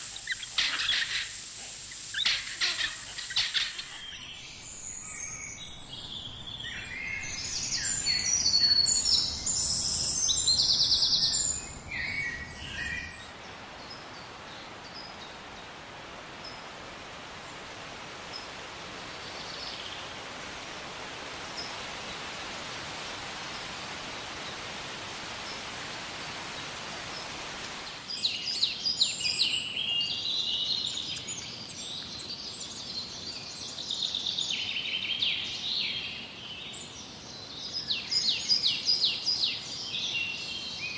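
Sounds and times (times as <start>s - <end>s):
songbirds chirping and trilling: 0.0s - 40.9s
steady even hiss: 0.0s - 40.9s.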